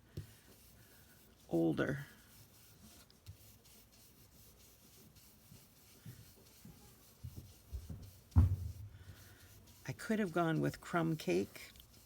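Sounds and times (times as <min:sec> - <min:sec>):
brush rubbing on paper: 0:00.2 - 0:12.0
faint knocks: 0:07.2 - 0:09.1
sharp thump: 0:08.4 - 0:09.0.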